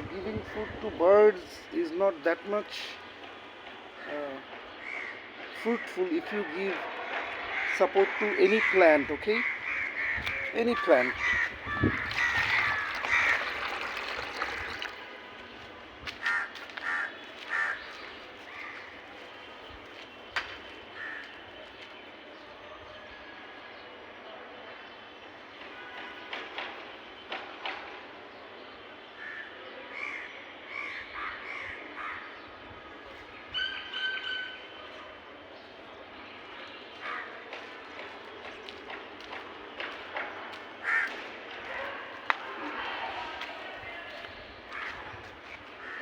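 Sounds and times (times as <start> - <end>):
birds calling: 0.0 - 22.4, 29.2 - 46.0
crows cawing: 4.8 - 6.0, 7.4 - 14.9, 16.1 - 19.0, 21.0 - 21.4, 29.2 - 32.5, 37.0 - 37.7, 40.8 - 43.5, 44.2 - 46.0.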